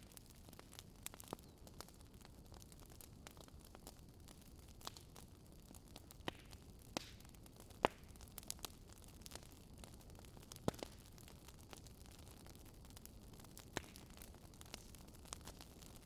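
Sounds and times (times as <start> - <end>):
fireplace crackling and popping: 0.0 - 16.0.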